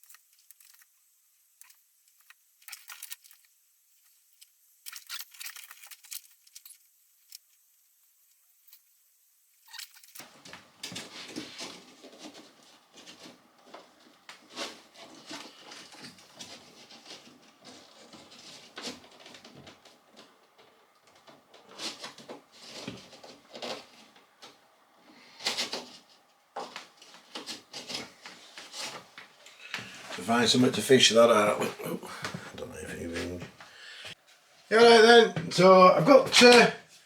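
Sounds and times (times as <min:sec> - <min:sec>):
cable and tools rustling and scraping: 0:00.0 - 0:09.0, 0:09.6 - 0:34.7.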